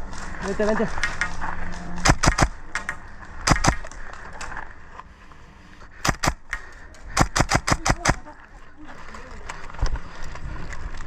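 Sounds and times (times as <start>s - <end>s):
airsoft guns firing: 2.0s - 3.9s, 6.0s - 6.5s, 7.1s - 8.3s.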